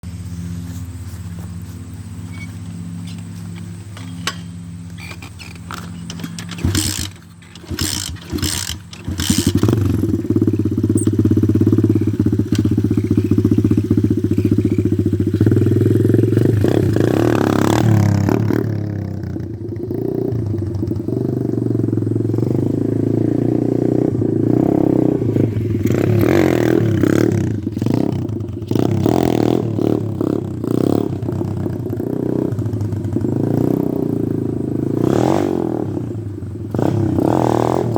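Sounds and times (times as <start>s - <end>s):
motorbike engine revving: 1.6s - 37.9s
engine knocks: 3.2s - 18.4s.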